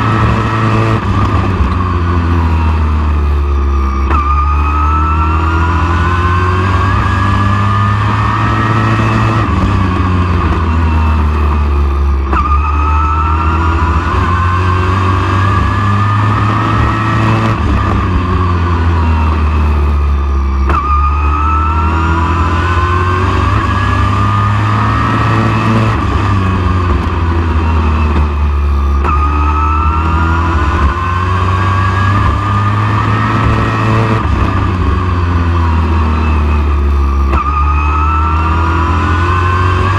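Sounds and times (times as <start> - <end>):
race truck engine revving: 0.0 - 39.9.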